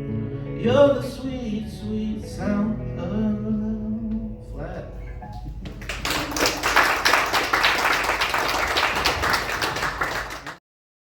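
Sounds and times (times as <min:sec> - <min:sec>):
audience applauding: 0:05.6 - 0:10.6.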